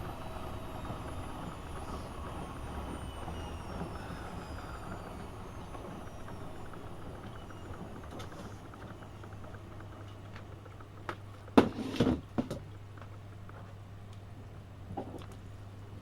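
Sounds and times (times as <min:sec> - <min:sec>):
high motor whine: 0:00.0 - 0:11.0
washing machine humming: 0:00.0 - 0:16.0.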